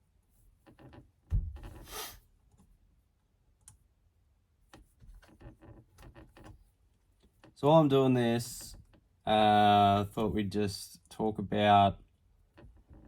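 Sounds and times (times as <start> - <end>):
thump: 1.3 - 1.8
short scrape: 1.6 - 2.2.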